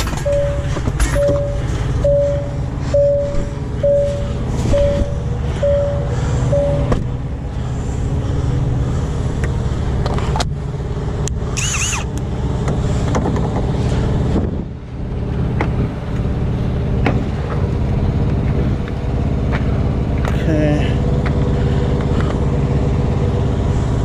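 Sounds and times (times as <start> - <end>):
diesel truck engine idling: 0.0 - 24.0
high squeal: 11.6 - 12.1.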